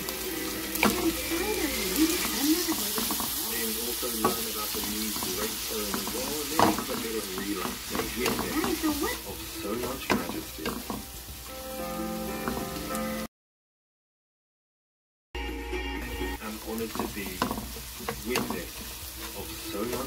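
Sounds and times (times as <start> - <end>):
wooden spatula scraping pan: 0.0 - 11.4, 12.4 - 12.8, 16.4 - 20.0
food sizzling in oil: 0.0 - 13.3, 16.0 - 20.0.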